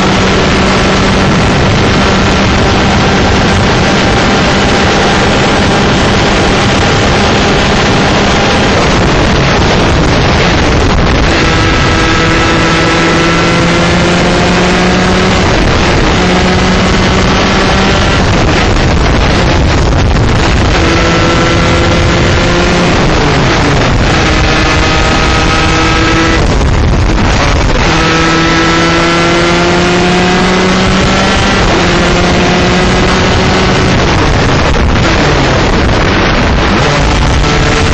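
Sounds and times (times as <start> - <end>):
kart engine racing: 0.0 - 37.9
wind rush on microphone: 0.0 - 37.9.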